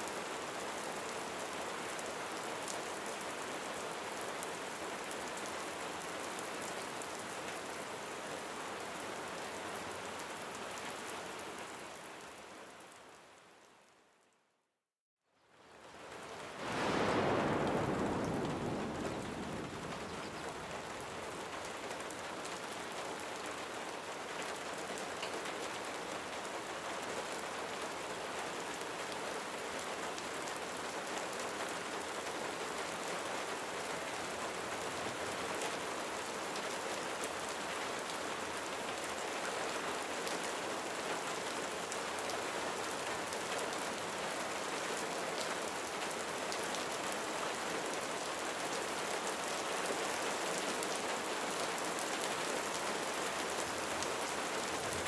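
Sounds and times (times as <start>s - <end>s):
rain falling on a roof: 0.0s - 14.3s, 15.4s - 55.0s.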